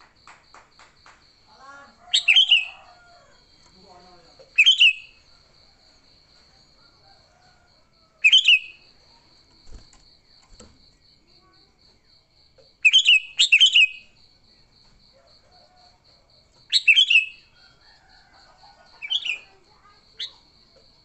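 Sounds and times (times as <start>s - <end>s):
bird calling: 2.0s - 3.0s.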